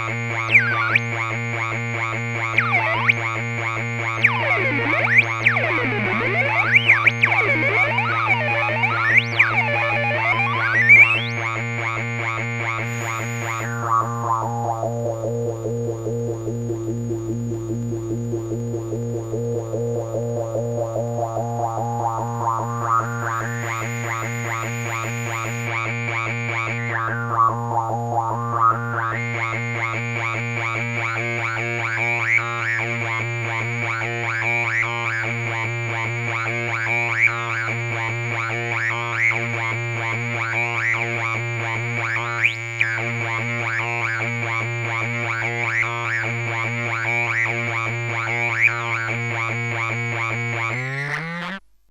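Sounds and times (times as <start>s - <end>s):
buzzy pulsing synthesizer drone: 0.0s - 51.6s
gliding synth chirps: 4.1s - 11.4s.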